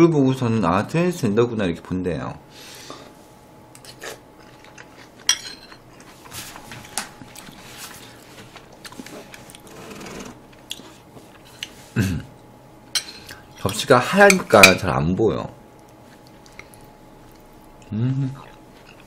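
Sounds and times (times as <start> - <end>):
person chewing food: 3.8 - 9.7, 15.7 - 19.0
cutlery clinking on dishes: 5.3 - 5.8.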